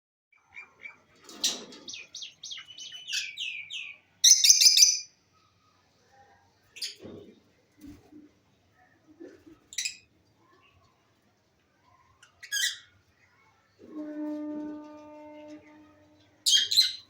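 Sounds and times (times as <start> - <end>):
lovebirds chirping: 0.4 - 5.1.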